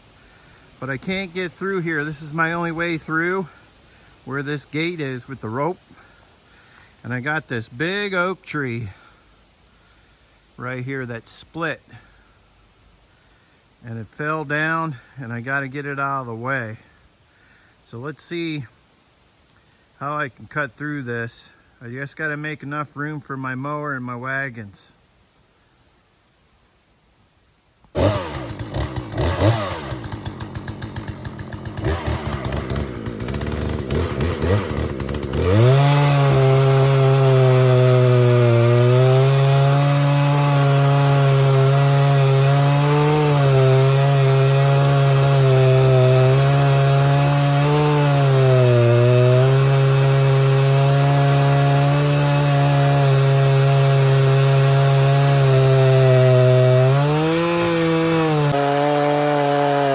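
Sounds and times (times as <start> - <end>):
chainsaw cutting wood: 0.9 - 3.6, 27.9 - 59.9.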